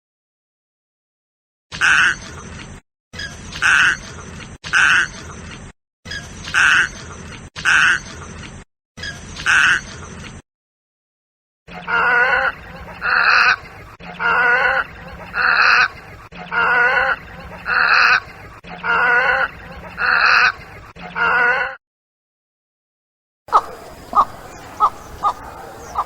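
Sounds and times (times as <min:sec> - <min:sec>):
bird calling: 0:03.2 - 0:04.1, 0:11.7 - 0:21.7, 0:23.5 - 0:26.0.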